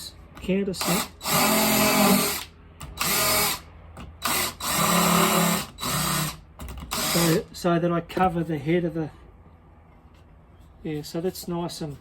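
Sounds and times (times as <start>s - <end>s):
cordless drill drilling into wood: 0.8s - 3.6s, 4.2s - 7.5s.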